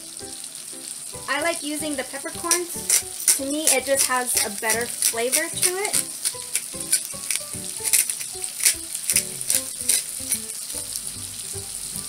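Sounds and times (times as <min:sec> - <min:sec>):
food sizzling in butter: 0:00.0 - 0:12.0
pepper mill grinding: 0:02.3 - 0:11.0.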